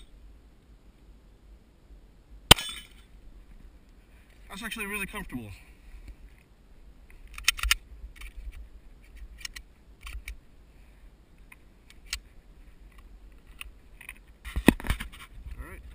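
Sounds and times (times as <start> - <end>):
sharp mechanical clicks: 7.3 - 8.4.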